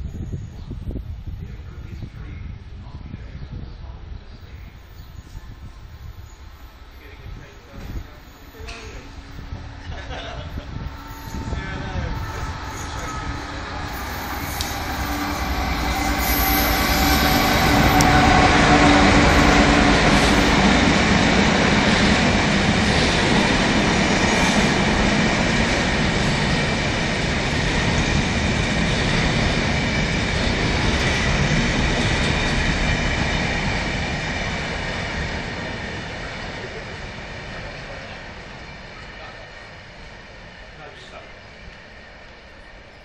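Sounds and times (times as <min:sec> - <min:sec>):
train wheels rolling on rails: 0:04.8 - 0:43.0
diesel locomotive engine running: 0:07.2 - 0:39.4.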